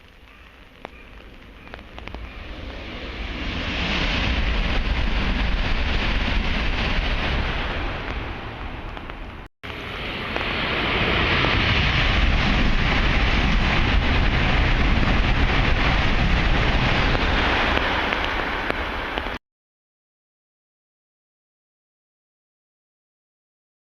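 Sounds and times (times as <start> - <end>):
train rushing past: 2.1 - 19.4.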